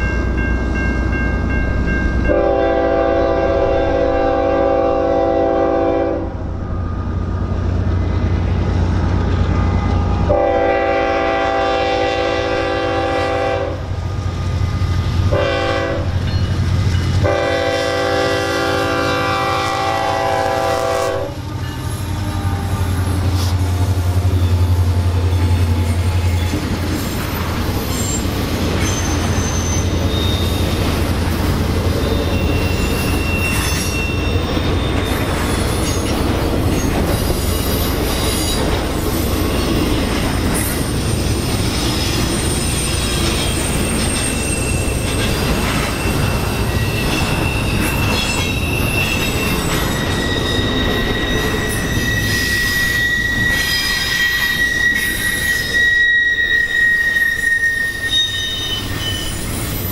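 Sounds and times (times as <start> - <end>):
locomotive engine drone: 0.0 - 57.1
locomotive horn blasts: 2.3 - 6.4, 10.2 - 13.9, 15.3 - 16.2, 17.2 - 21.6
wheels clattering on rails: 21.3 - 55.9
faint wheel squeals: 21.7 - 30.8, 32.0 - 38.6, 41.9 - 59.9.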